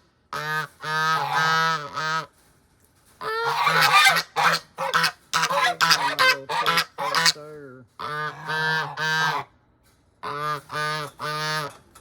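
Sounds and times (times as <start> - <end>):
geese honking: 0.4 - 2.3, 3.2 - 7.4, 8.0 - 9.5, 10.2 - 11.7.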